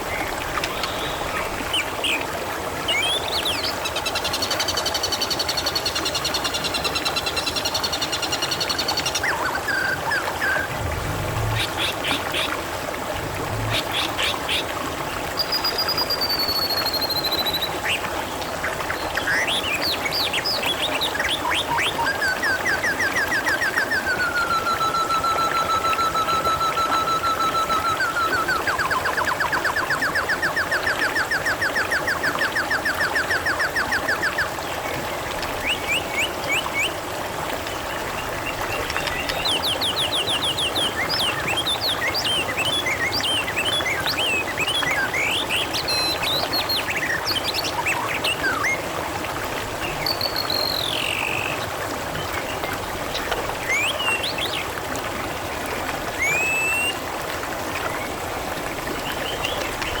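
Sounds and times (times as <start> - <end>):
water trickling and splashing: 0.0 - 60.0
birds chirping and whistling: 9.0 - 12.4.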